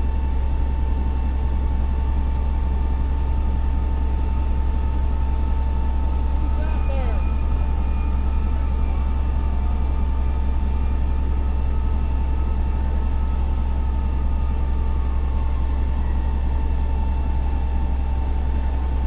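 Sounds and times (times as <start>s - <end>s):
thin steady whine: 5.4s - 18.9s
diesel engine running: 5.8s - 12.5s.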